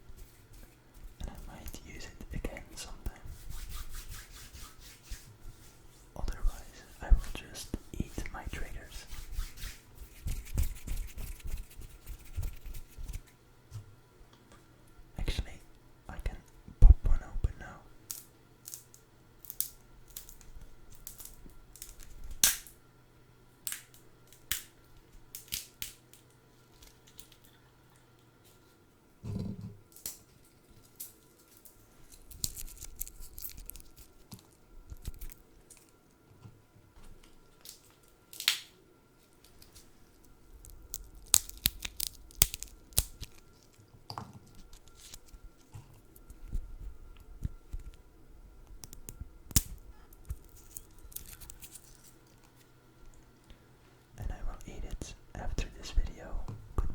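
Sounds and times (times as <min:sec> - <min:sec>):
food crackling and tearing: 0:18.1 - 0:22.7, 0:23.6 - 0:28.2, 0:29.9 - 0:36.0, 0:37.2 - 0:38.7, 0:39.4 - 0:46.6, 0:48.6 - 0:53.4.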